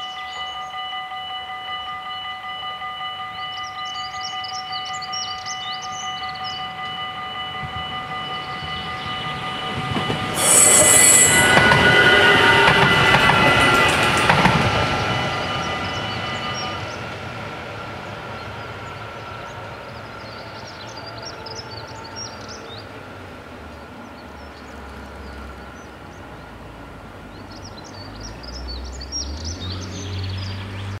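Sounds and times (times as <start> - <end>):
birds chirping: 3.3 - 14.0, 14.6 - 17.2, 18.0 - 23.0
electric train running: 5.4 - 23.2.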